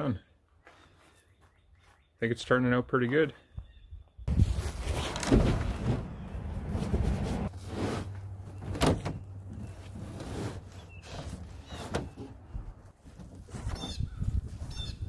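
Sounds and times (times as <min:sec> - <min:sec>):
carpet scraping and rustling: 0:04.3 - 0:15.0.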